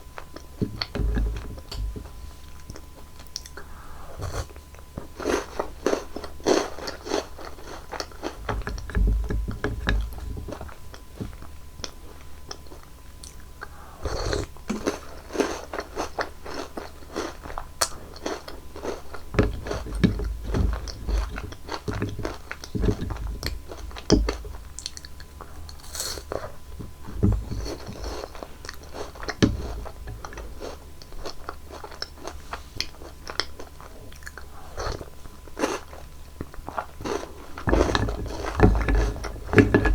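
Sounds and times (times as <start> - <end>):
chocolate sweets crunching: 0.0 - 39.9.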